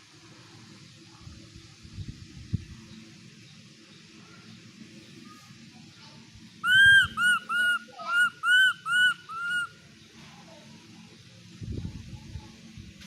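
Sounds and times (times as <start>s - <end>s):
baby monkey high-pitched calls: 6.6s - 9.8s.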